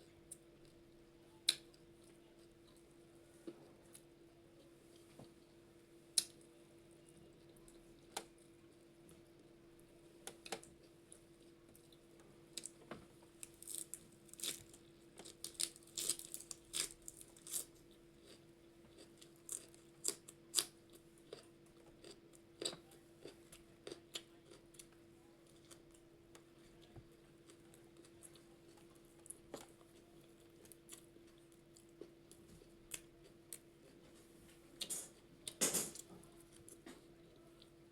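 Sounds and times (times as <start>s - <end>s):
faint steady hum: 0.0s - 37.9s
person chewing food: 13.4s - 34.0s.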